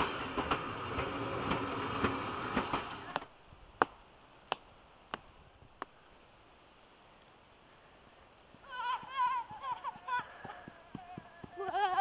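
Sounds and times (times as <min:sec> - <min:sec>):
railway carriages rattling past: 0:00.0 - 0:03.2.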